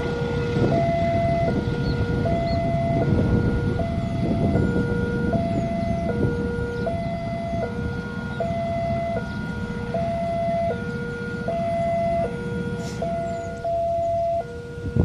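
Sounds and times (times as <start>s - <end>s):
low rumbling noise: 0.0s - 15.0s
level crossing alarm two-tone: 2.2s - 3.2s, 8.4s - 10.8s, 11.4s - 12.4s, 13.0s - 14.8s.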